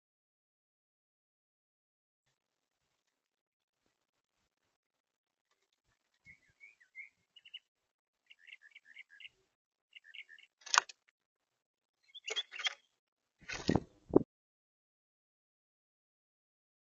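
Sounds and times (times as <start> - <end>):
bird chirps: 5.9 - 10.6, 12.0 - 13.0.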